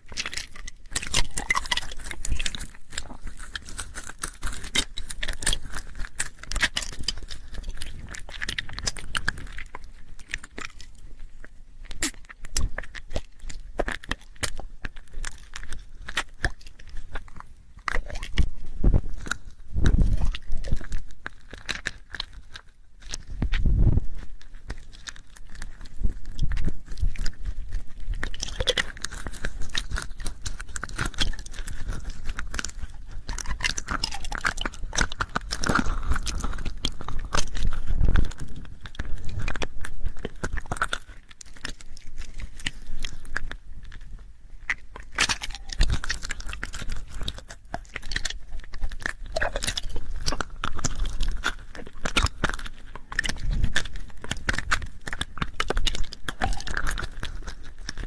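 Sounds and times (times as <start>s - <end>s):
wet mouth clicks and smacks: 0.0s - 58.0s.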